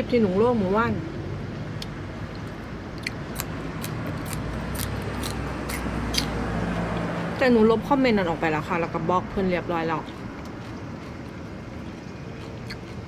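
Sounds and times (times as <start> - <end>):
steady low hum: 0.0 - 13.0
person chewing food: 1.8 - 7.1, 10.0 - 13.0.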